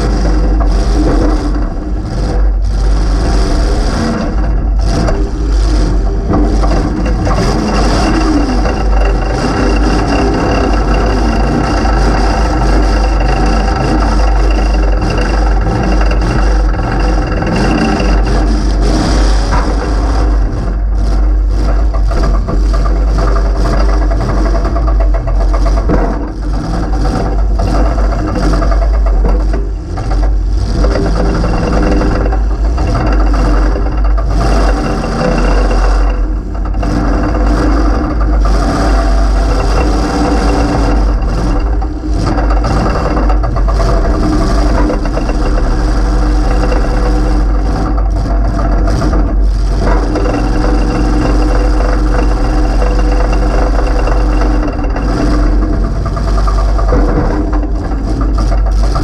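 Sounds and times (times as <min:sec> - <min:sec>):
loud car engine revving: 0:00.0 - 0:59.0.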